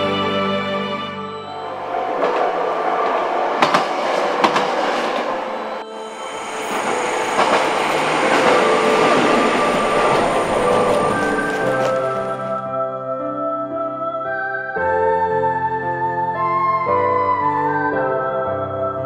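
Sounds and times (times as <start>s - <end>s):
train passing: 1.2s - 12.6s
train wheels clacking over rail joints: 1.6s - 12.6s.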